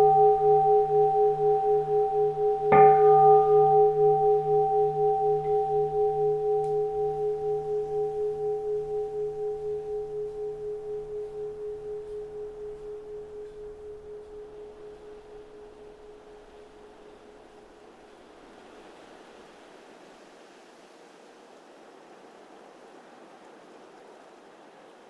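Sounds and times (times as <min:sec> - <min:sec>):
bowl bell ringing: 0:00.0 - 0:17.5
faint wind hiss: 0:00.0 - 0:25.0.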